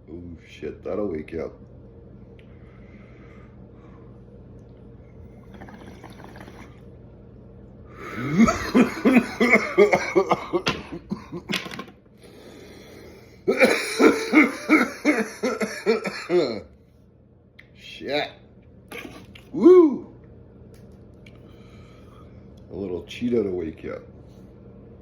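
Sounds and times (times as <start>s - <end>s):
man coughing hard: 8.2s - 11.6s, 13.5s - 16.6s.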